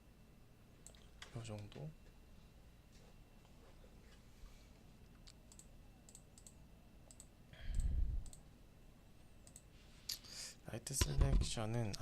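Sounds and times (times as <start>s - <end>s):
computer mouse clicking: 0.8s - 1.8s, 5.2s - 8.4s, 9.4s - 9.7s.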